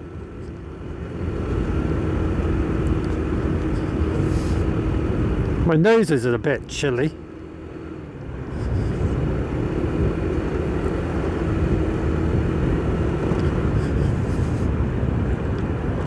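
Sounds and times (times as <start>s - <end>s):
motorcycle engine rumble: 0.0s - 16.0s
wind rushing over microphone: 8.3s - 16.0s.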